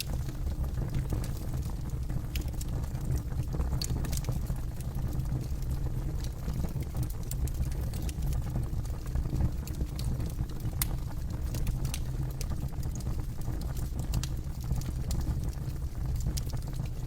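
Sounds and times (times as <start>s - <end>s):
low rumble of flames: 0.0s - 17.0s
wood crackling and popping: 0.0s - 17.0s.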